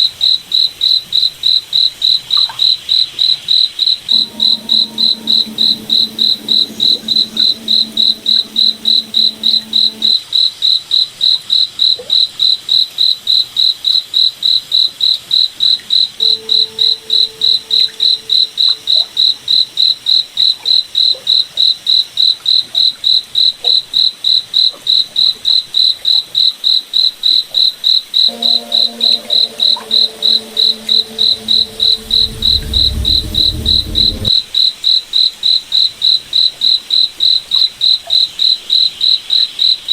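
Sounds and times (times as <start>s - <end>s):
low rumble: 4.1s - 10.1s, 28.4s - 34.4s
faint low hum: 4.1s - 10.2s, 28.3s - 34.3s.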